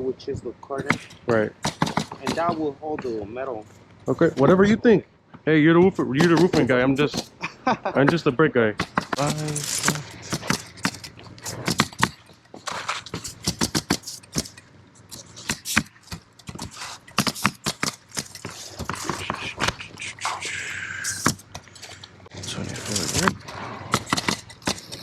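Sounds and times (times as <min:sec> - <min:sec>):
hand tools clicking and knocking: 0:00.8 - 0:03.3, 0:06.0 - 0:07.4, 0:08.8 - 0:20.2, 0:21.1 - 0:25.0
hand tools scraping: 0:00.8 - 0:04.7, 0:08.8 - 0:25.0.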